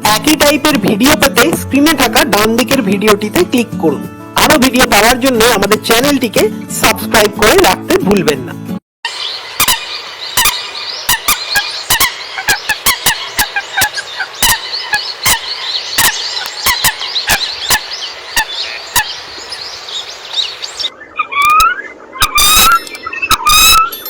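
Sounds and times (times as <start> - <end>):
coots calling: 9.1 - 24.0.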